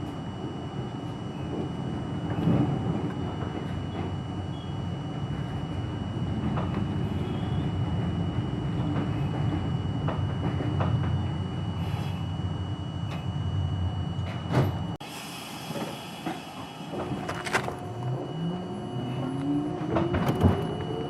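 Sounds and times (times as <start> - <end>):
subway train rumble: 0.0 - 21.0.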